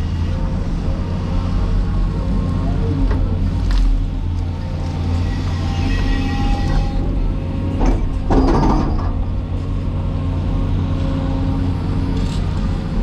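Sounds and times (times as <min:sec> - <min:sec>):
excavator diesel engine running: 0:00.0 - 0:13.0
mechanical clatter and creak: 0:05.1 - 0:09.4, 0:12.1 - 0:12.7.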